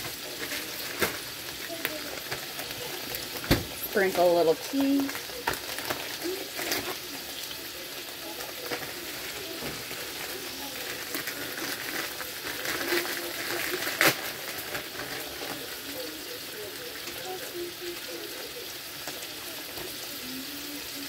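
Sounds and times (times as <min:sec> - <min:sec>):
eggs sizzling in a frying pan: 0:00.0 - 0:21.0.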